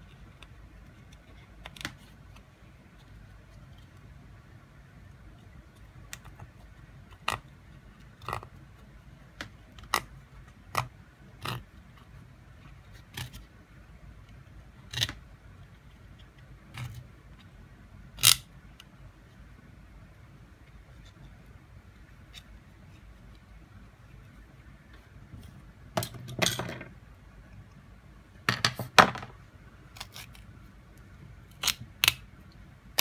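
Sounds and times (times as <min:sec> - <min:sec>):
plastic parts clicking and scraping: 0:00.0 - 0:04.0, 0:10.7 - 0:13.5, 0:14.3 - 0:17.5, 0:18.2 - 0:18.9, 0:31.5 - 0:32.2
faint low hum: 0:00.0 - 0:33.0.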